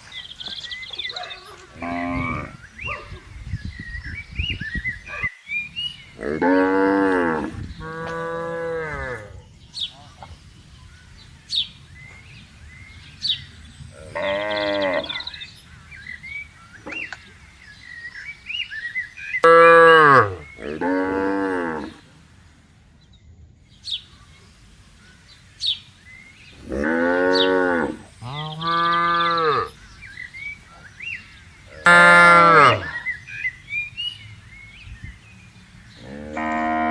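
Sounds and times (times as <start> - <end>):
cattle mooing: 1.8 - 2.6.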